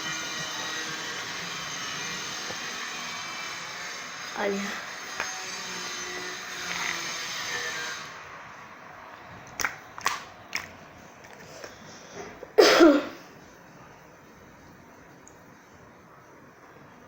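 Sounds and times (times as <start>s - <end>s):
slime squelching: 6.4s - 7.5s, 9.4s - 12.4s
slime popping: 9.4s - 11.4s.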